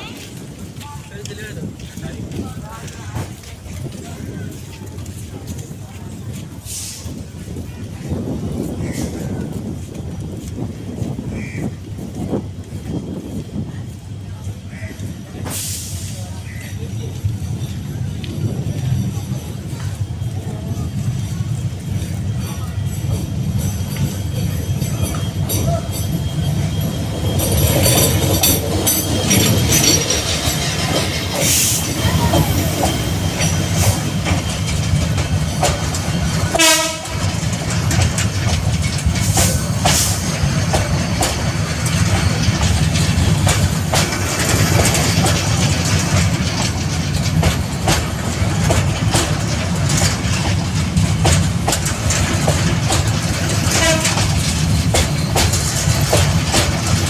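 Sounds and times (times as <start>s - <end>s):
train rumbling on track: 0.0s - 57.0s
wheels clacking over rails: 16.9s - 57.0s
train horn blast: 36.5s - 37.4s, 53.6s - 54.3s.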